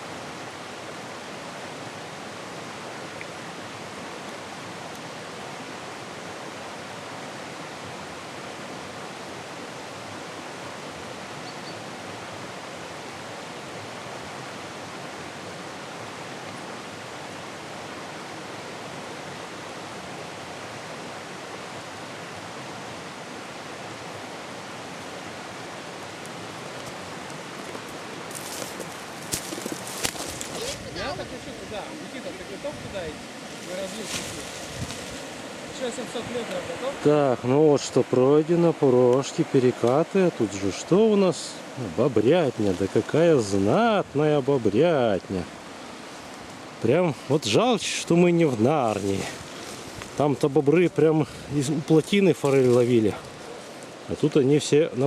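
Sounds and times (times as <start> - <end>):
river rushing over rapids: 0.0 - 55.0.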